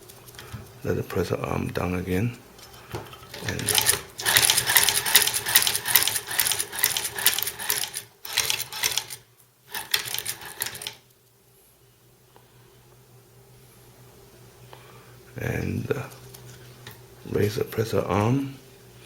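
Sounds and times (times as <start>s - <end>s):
sewing machine clicking and clattering: 3.3s - 11.0s.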